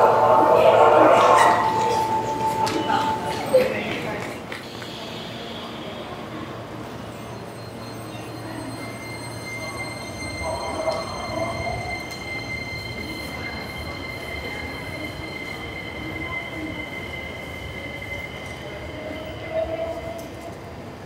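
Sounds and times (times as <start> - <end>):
electric train rumble: 0.0 - 21.0.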